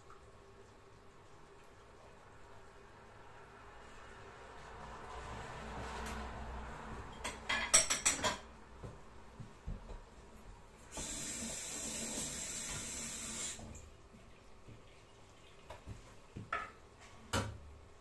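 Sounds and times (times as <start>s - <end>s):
kitchen tap running: 10.8s - 13.9s.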